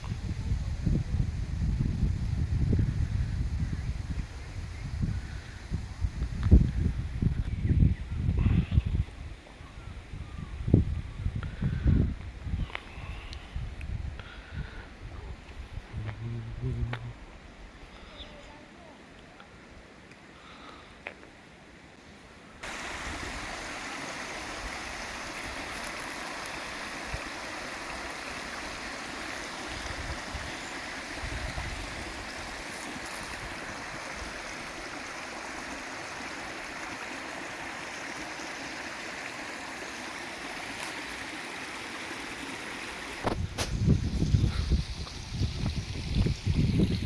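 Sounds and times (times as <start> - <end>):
low rumbling: 15.8 - 17.4
flowing water rushing: 22.6 - 47.0.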